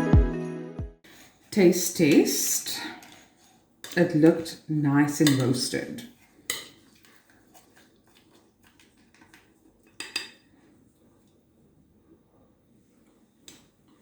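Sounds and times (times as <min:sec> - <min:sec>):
spoon clinking against bowl: 0:05.2 - 0:05.6.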